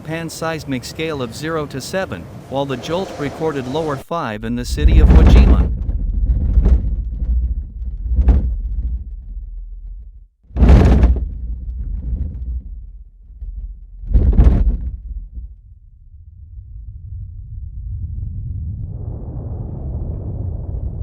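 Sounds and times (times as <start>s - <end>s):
low rumbling: 1.0s - 21.0s
heavy thumps: 4.1s - 15.7s.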